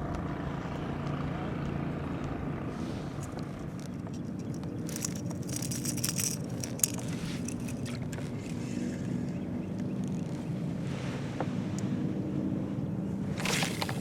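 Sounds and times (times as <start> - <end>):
motorboat engine droning: 0.0 - 14.0
rattling clicks: 3.2 - 8.7.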